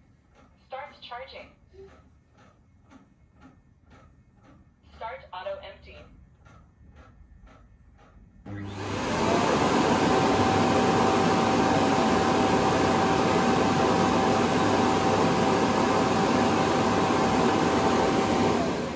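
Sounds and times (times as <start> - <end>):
steady motor whine: 8.5 - 18.9
vacuum dock suction rush: 8.5 - 18.9.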